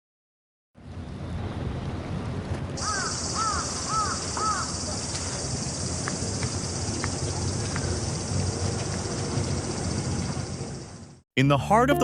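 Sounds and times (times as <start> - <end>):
bird cawing: 2.8 - 5.9
high insect buzz: 2.8 - 11.0.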